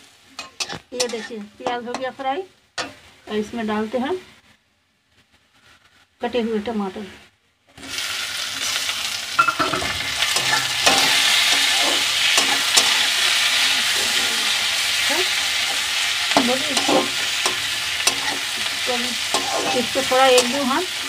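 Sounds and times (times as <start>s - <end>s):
tomatoes sizzling in hot oil: 0.0s - 4.2s, 7.8s - 21.0s
metal spatula scraping pan: 0.4s - 2.2s, 9.4s - 21.0s.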